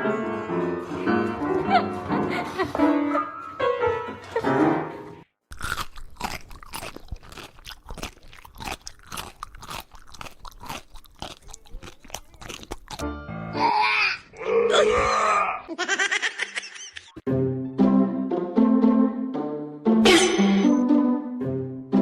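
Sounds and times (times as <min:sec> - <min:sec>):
music: 0:00.0 - 0:05.3, 0:13.0 - 0:14.1, 0:17.2 - 0:22.0
crunchy chewing: 0:05.5 - 0:13.0.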